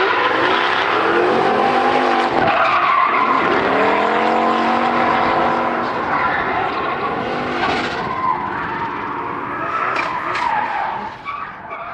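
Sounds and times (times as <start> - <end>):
car engine running: 3.1 - 10.8
tyres squealing and scrubbing: 4.7 - 11.9.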